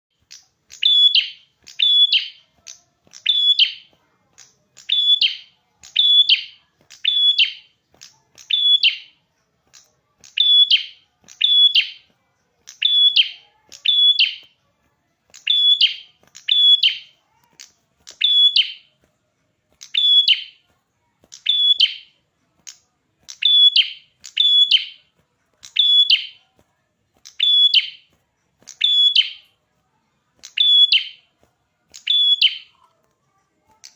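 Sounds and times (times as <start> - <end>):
small songbird calling: 0.3 - 3.9, 4.8 - 7.7, 12.7 - 14.5, 15.4 - 17.1, 18.1 - 18.9, 23.3 - 25.0, 31.9 - 32.7.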